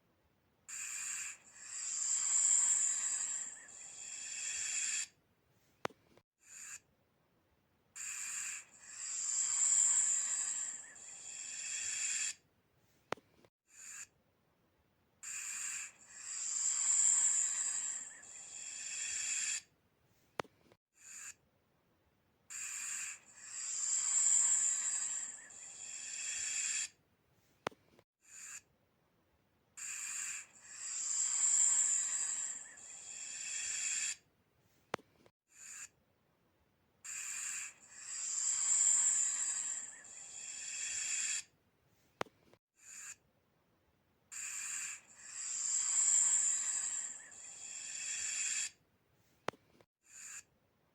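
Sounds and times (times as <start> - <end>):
snake hissing: 0.7 - 5.1, 8.0 - 12.4, 15.2 - 19.7, 22.5 - 27.0, 29.8 - 34.2, 37.1 - 41.5, 44.4 - 48.8.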